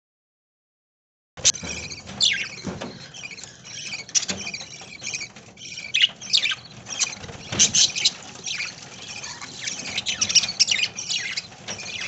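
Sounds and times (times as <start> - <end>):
budgerigars chirping: 1.4 - 12.0.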